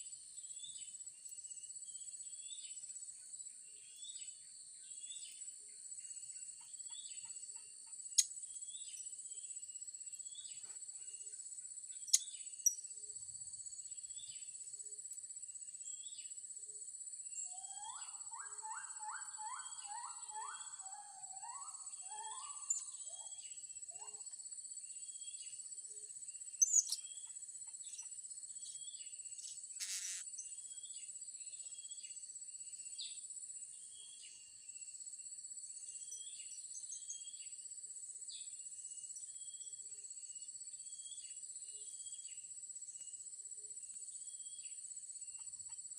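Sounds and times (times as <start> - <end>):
high insect drone: 20.6 - 45.9
parrots chirping: 29.8 - 30.2.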